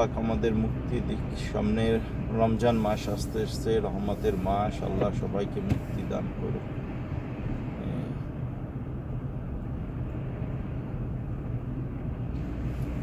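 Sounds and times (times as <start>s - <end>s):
car engine hum inside cabin: 0.0s - 13.0s
road noise: 0.0s - 13.0s.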